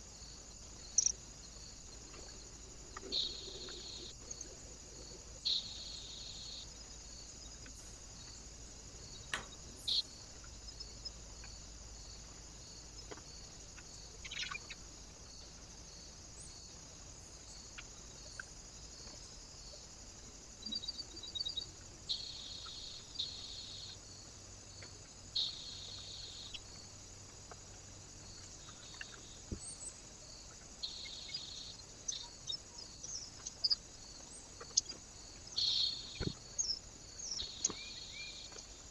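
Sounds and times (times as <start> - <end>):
microphone hiss: 0.0 - 38.9
small birds chirping: 0.0 - 38.9.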